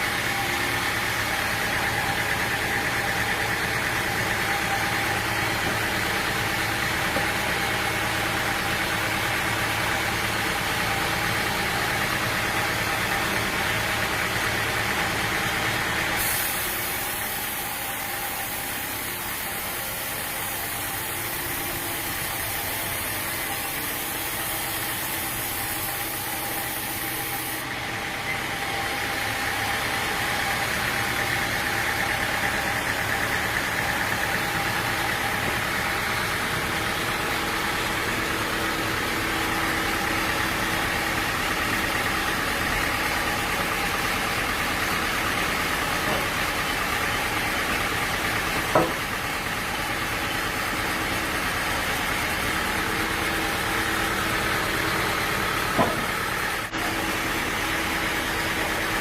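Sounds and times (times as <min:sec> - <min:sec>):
sawmill machinery humming: 0:00.0 - 0:59.0
sharp knock: 0:48.7 - 0:49.0, 0:55.8 - 0:56.2.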